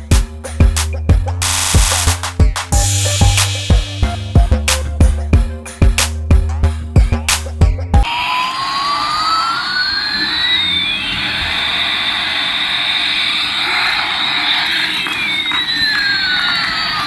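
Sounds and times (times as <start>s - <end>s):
toy jet engine sound effect: 1.4s - 3.8s, 8.0s - 17.0s
burst of music: 1.4s - 6.1s.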